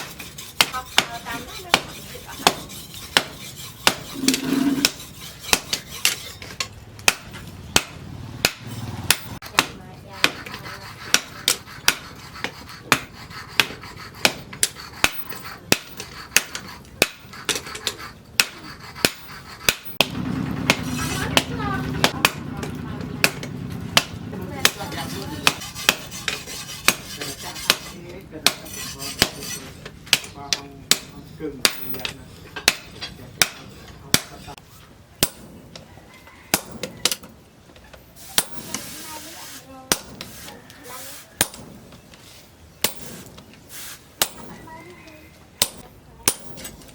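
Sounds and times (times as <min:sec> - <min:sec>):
hammer striking steel on anvil: 0:18.4 - 0:34.6, 0:35.2 - 0:35.6, 0:36.5 - 0:37.3, 0:39.9 - 0:40.3, 0:41.4 - 0:41.9, 0:42.8 - 0:43.4, 0:44.2 - 0:44.6, 0:45.6 - 0:46.9
hammer striking metal anvil: 0:35.2 - 0:35.6, 0:41.4 - 0:41.8, 0:42.8 - 0:43.3, 0:45.6 - 0:46.8.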